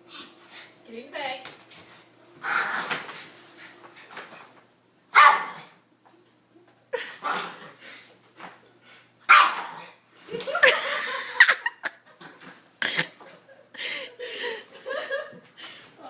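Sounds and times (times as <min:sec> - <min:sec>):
dog barking and yipping: 0:05.1 - 0:05.7, 0:09.3 - 0:09.9.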